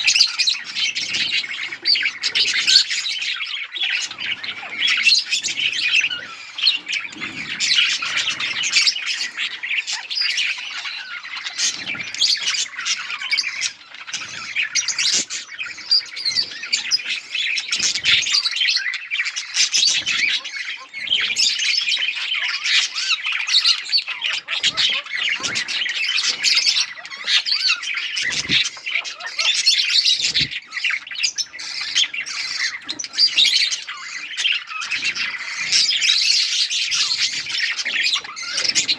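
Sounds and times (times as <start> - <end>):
budgerigars chirping and squawking: 0.0 - 38.9.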